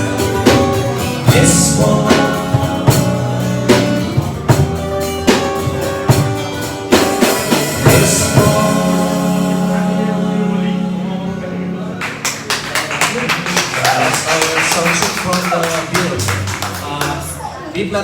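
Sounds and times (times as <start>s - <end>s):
person singing: 0.0s - 4.5s, 7.6s - 11.9s
drum hits: 0.0s - 9.8s
live band playing ballad: 0.0s - 13.6s, 14.3s - 17.8s.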